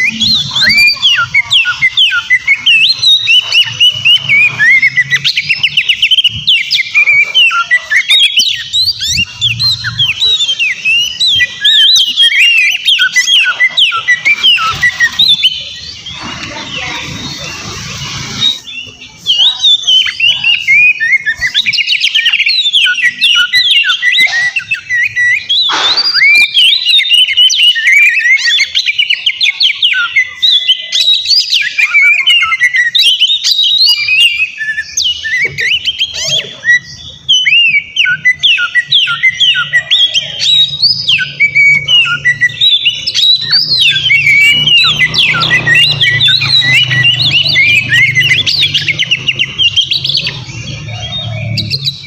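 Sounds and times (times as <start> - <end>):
bird singing: 0.0 - 52.0.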